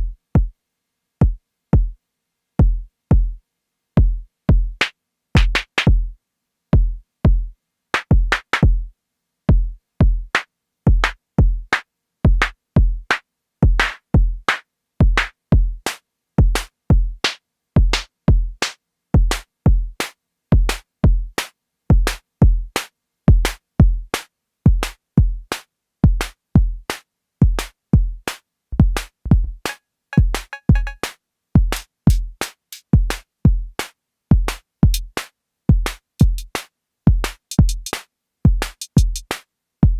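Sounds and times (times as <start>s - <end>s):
drum machine kick drums: 0.0s - 0.5s, 1.2s - 2.0s, 2.6s - 3.4s, 4.0s - 6.1s, 6.8s - 8.9s, 9.5s - 10.3s, 10.9s - 11.7s, 12.3s - 15.8s, 16.4s - 24.1s, 24.7s - 39.9s
snare and hi-hat strikes: 4.8s - 6.0s, 8.0s - 8.8s, 10.3s - 39.9s.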